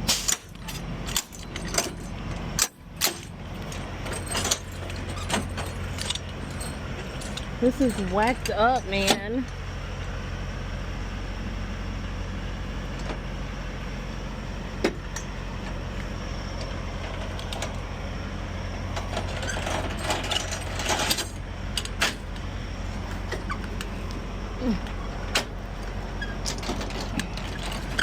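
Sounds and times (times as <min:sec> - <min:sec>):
metallic rattling and clanking: 0:00.0 - 0:09.4, 0:18.9 - 0:28.0
diesel truck engine idling: 0:00.0 - 0:28.0.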